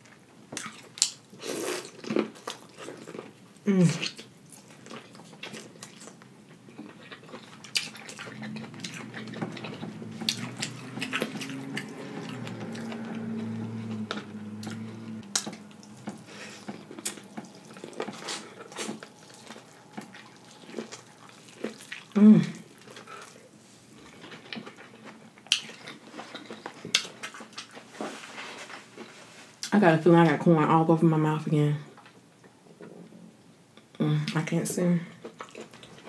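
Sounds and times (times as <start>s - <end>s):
chewing corn on the cob: 0.0s - 28.0s, 35.2s - 36.0s
closed-mouth humming: 6.9s - 23.5s.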